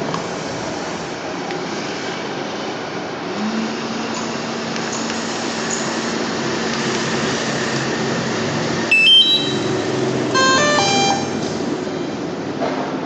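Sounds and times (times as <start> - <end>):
electronic beeps: 8.9 - 9.8, 10.4 - 11.4
drone whirring: 8.9 - 11.6.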